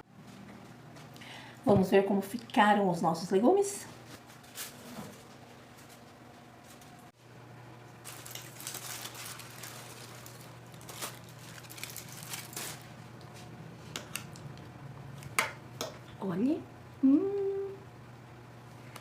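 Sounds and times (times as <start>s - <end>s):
steady low hum: 0.0s - 19.0s
aluminium foil crinkling: 8.0s - 13.0s.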